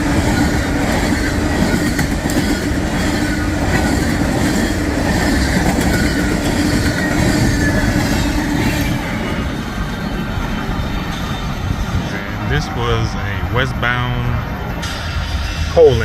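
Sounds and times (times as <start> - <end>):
freight train wheels rumbling: 0.0 - 16.0.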